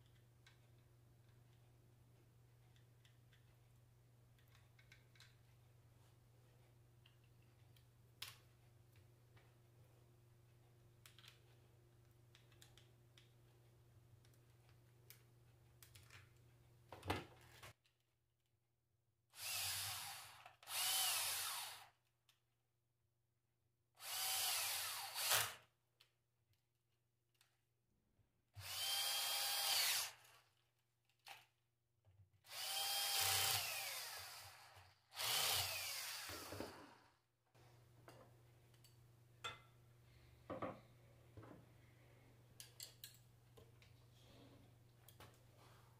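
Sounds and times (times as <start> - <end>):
power drill whining: 19.4 - 21.9, 24.0 - 25.6, 28.6 - 30.4, 32.5 - 37.2.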